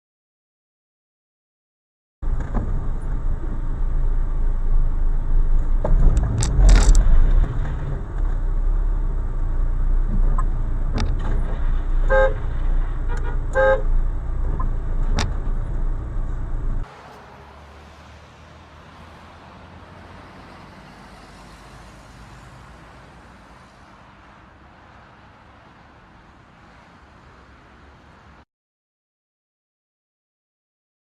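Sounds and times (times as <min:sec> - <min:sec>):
car engine and road rumble: 0:02.2 - 0:28.4
car horn honks: 0:12.1 - 0:14.0.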